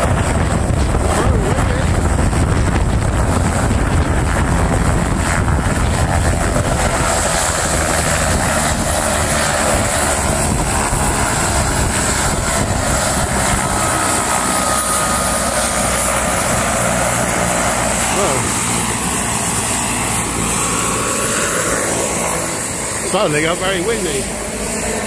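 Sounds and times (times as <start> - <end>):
helicopter rotor and engine: 0.0 - 25.0
high turbine whine: 0.0 - 25.0.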